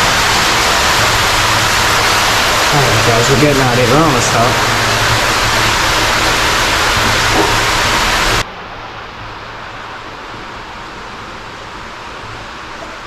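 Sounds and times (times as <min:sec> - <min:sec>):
loud rushing noise: 0:00.0 - 0:08.4.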